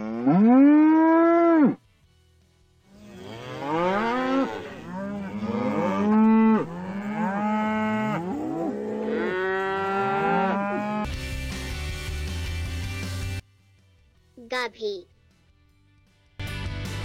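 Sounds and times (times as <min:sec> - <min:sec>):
cows mooing: 0:00.0 - 0:01.8, 0:02.9 - 0:11.1.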